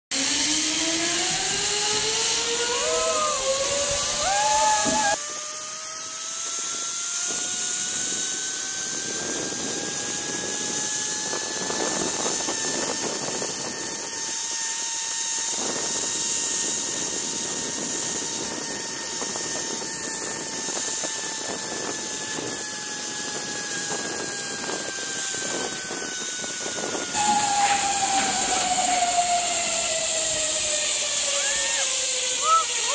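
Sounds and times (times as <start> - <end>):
zipline trolley pulleys whining: 0.1 - 32.9
steady rush of noise: 27.1 - 32.9.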